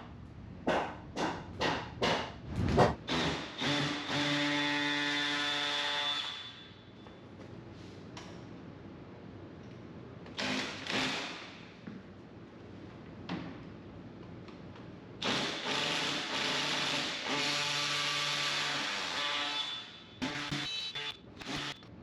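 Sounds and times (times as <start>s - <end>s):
scrapes and knocks on wood: 2.0s - 3.0s
power tool running: 20.2s - 21.8s.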